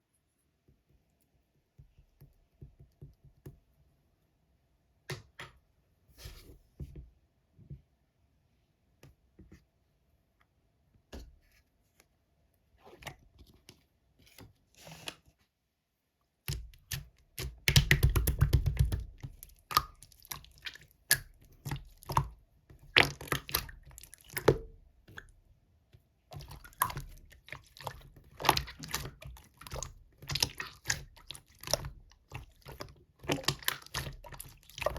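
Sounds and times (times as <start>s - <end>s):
slime squishing and clicking: 16.5s - 22.3s, 26.4s - 34.9s.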